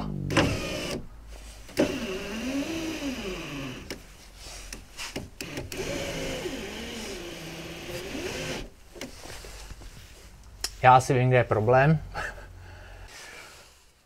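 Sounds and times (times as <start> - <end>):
electric window motor whine: 0.0 - 1.1, 1.8 - 4.0, 5.4 - 8.7.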